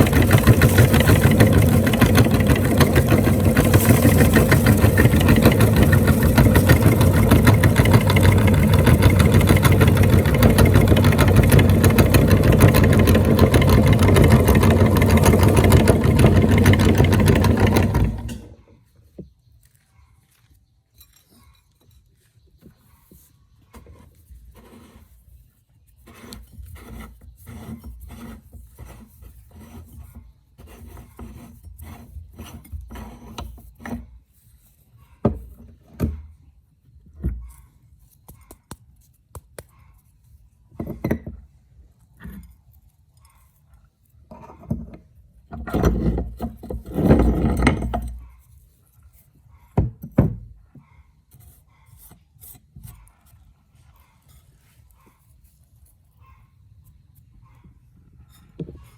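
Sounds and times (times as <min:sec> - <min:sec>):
meat grinder crunching snacks: 0:00.0 - 0:18.2.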